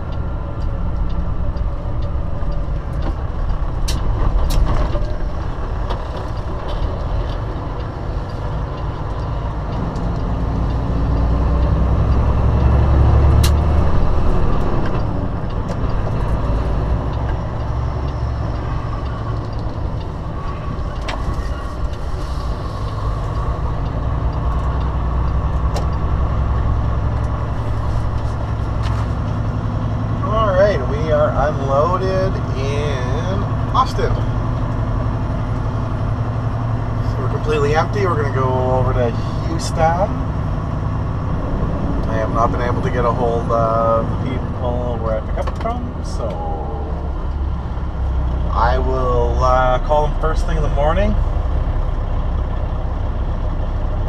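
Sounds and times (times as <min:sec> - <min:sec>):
truck diesel engine running: 0:00.0 - 0:54.0
sharp clicks: 0:13.3 - 0:22.2.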